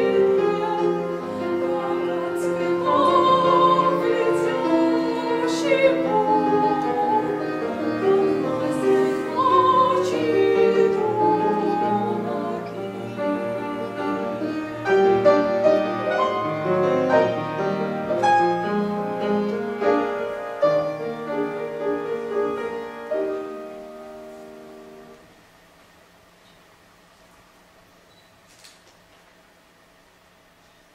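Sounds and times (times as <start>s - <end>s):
woman singing with vibrato: 0.0s - 15.4s
grand piano: 0.0s - 25.6s.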